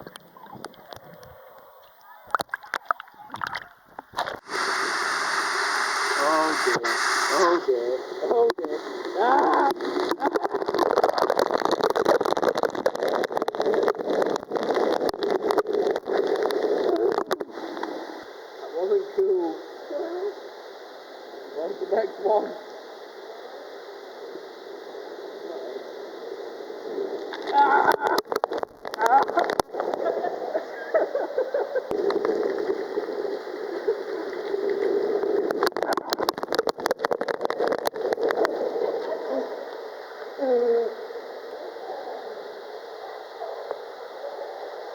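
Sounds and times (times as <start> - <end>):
crackles and knocks: 0.0 - 5.0, 8.4 - 18.3, 27.2 - 30.7, 31.8 - 40.3
rushing water: 4.2 - 7.4.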